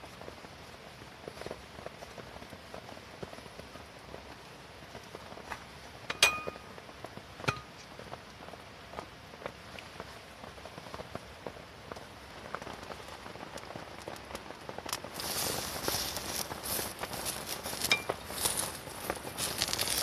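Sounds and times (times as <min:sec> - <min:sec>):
rain pattering on a tent: 0:00.0 - 0:20.0
small clicks and crackles: 0:00.0 - 0:20.0
food sizzling in a pan: 0:15.1 - 0:20.0.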